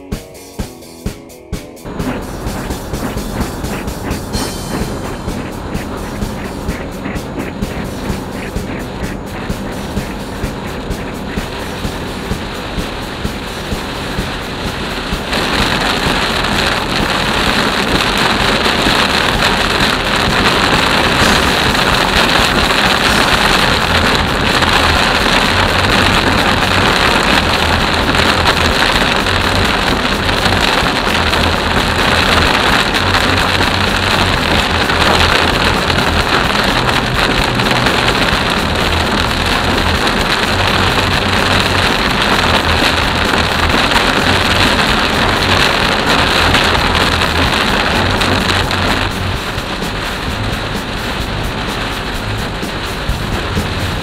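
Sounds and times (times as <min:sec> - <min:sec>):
low road rumble: 0:01.8 - 0:54.0
heavy rain on car windshield: 0:01.9 - 0:54.0.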